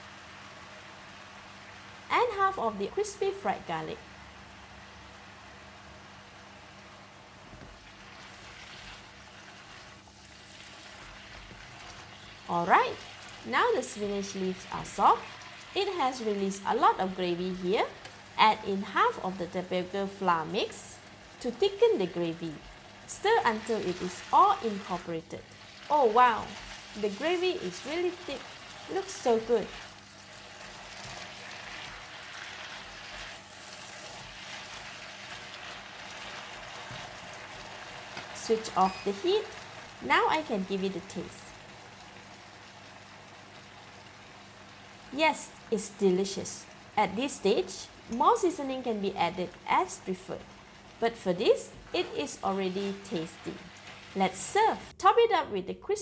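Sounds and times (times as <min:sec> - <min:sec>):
greens sizzling in a wok: 0:00.0 - 0:55.0
leaves rustling as stirred: 0:07.7 - 0:45.2, 0:45.9 - 0:54.9
spatula stirring: 0:25.6 - 0:39.2.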